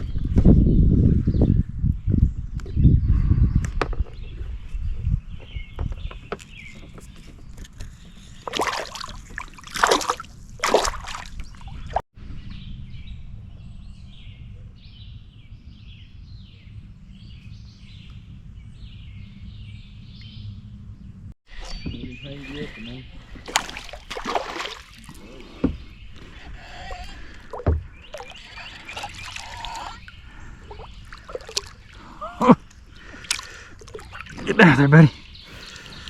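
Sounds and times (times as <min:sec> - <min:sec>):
birds chirping: 0:00.0 - 0:36.0
low outdoor background: 0:00.0 - 0:36.0
knocks and shuffling on kayak: 0:03.4 - 0:12.0, 0:21.5 - 0:36.0
water swishing and sloshing: 0:05.8 - 0:12.0, 0:21.5 - 0:36.0.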